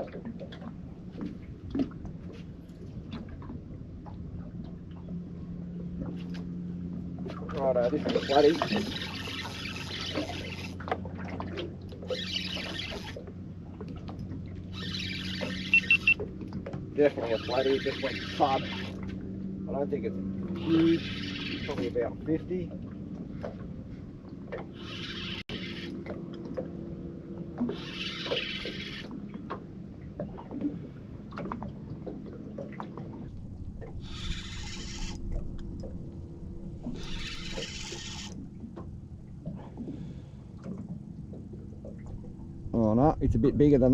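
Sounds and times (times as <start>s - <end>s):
steady low hum: 0.0s - 43.9s
water lapping and trickling: 0.0s - 43.9s
fishing reel winding hiss: 14.8s - 16.2s, 27.7s - 29.1s, 34.1s - 35.2s, 37.0s - 38.4s.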